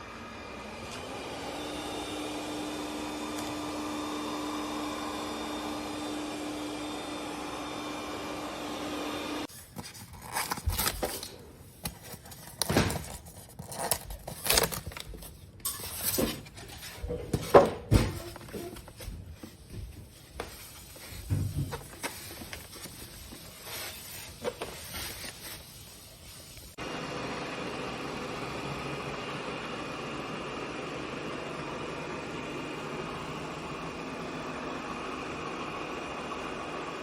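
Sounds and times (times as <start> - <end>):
motor humming and whining: 0.0 - 9.5.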